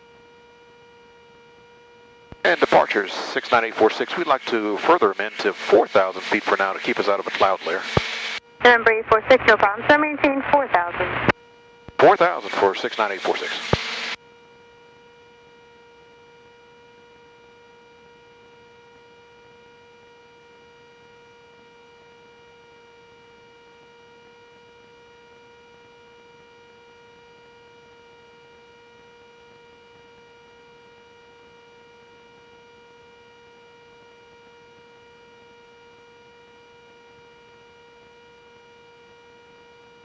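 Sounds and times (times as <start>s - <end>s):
radio calls: 2.4s - 11.3s, 12.0s - 14.2s.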